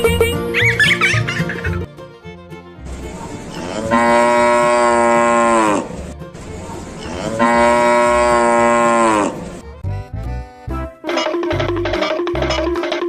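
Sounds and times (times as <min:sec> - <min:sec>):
cow mooing: 0:03.5 - 0:06.1, 0:07.0 - 0:09.6
percussive music: 0:09.6 - 0:13.0.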